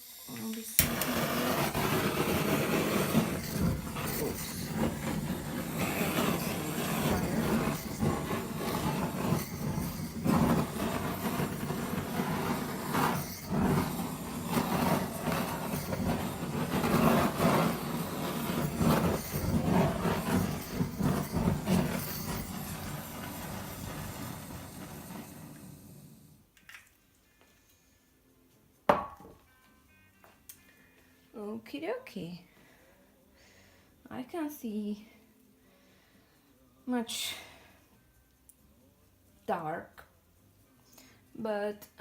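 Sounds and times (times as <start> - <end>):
butane torch flame hissing: 0.0 - 26.4.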